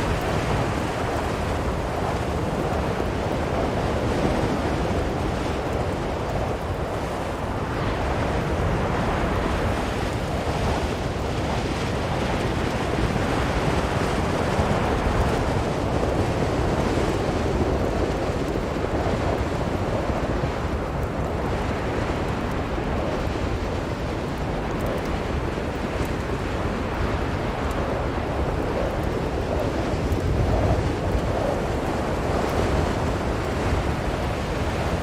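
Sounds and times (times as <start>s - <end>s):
blizzard wind blowing: 0.0s - 35.0s.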